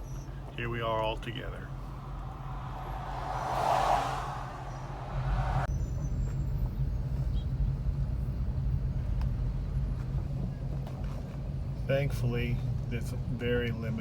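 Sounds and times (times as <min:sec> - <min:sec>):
car engine rumbling: 0:01.1 - 0:05.8.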